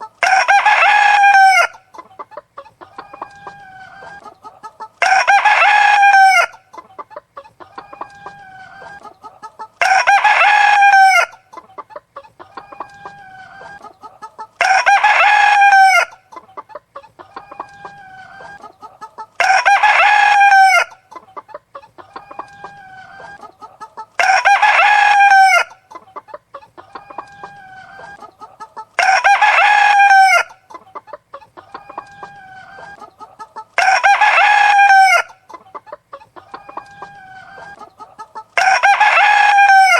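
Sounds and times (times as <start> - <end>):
hen clucking: 0.0 - 39.9
rooster crowing: 0.2 - 1.8, 5.0 - 6.6, 9.8 - 11.3, 14.6 - 16.1, 19.4 - 21.0, 24.2 - 25.8, 29.0 - 30.6, 33.8 - 35.4, 38.6 - 39.9.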